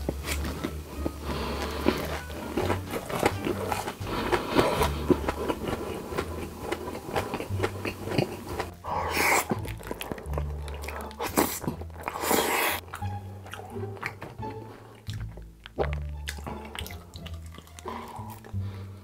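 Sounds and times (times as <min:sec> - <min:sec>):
wet chewing mouth sounds: 0:00.0 - 0:19.0
breathy burst: 0:17.8 - 0:19.0.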